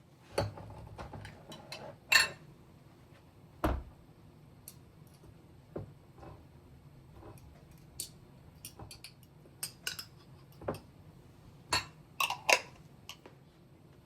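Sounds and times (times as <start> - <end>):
dishes and utensils clinking: 1.2 - 2.4, 7.2 - 10.9, 11.7 - 13.3.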